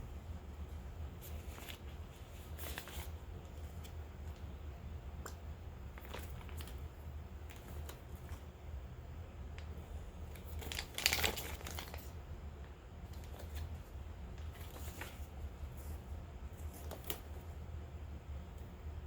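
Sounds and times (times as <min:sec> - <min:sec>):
packaging crinkling and rustling: 0:01.2 - 0:04.5, 0:05.2 - 0:08.4, 0:10.3 - 0:12.2, 0:13.1 - 0:17.5
packaging tearing: 0:10.4 - 0:12.1.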